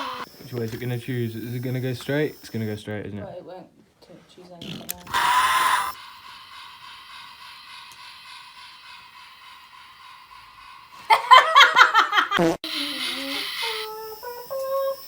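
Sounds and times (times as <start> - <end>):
person laughing loudly: 11.0 - 12.6.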